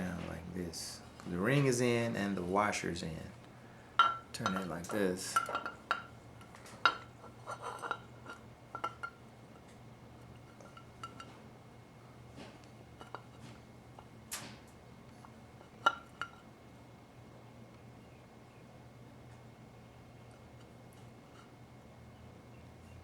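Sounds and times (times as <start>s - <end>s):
faint steady hum: 0.0s - 23.0s
metal parts clinking: 4.0s - 6.1s.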